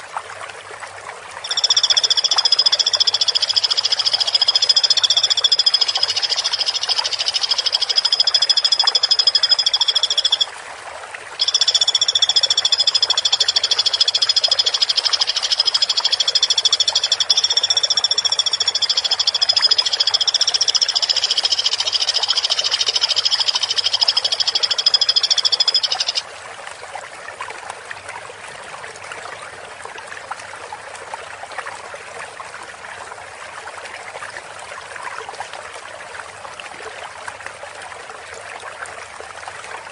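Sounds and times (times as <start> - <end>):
woodpecker rattling trill: 1.5 - 10.4, 11.4 - 26.2.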